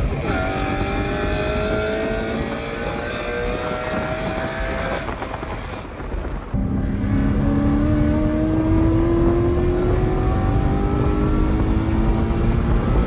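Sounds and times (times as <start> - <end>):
car engine accelerating hard: 0.0 - 5.5, 6.6 - 13.0.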